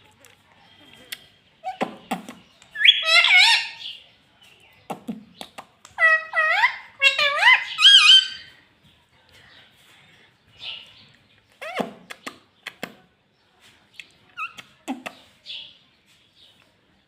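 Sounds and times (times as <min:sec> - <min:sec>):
parrot warbling calls: 0:02.8 - 0:03.9, 0:06.0 - 0:08.5.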